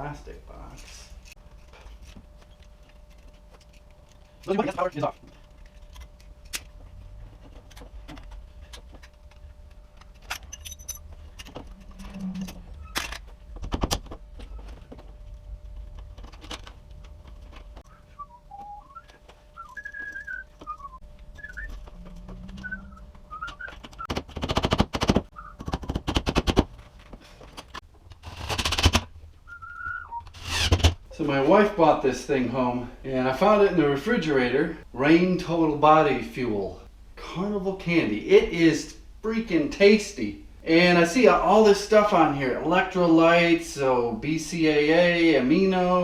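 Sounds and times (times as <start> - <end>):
person whistling: 17.8 - 21.9, 22.5 - 23.8, 29.5 - 30.3.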